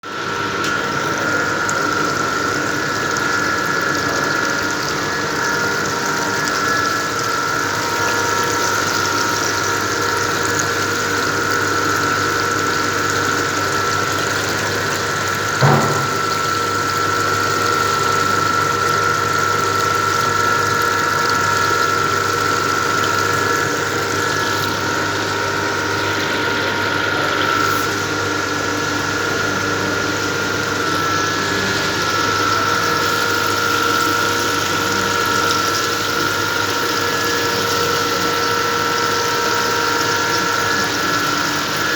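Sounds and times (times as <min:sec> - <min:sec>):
electric pump whining: 0:00.0 - 0:41.9
single knock: 0:15.6 - 0:16.3.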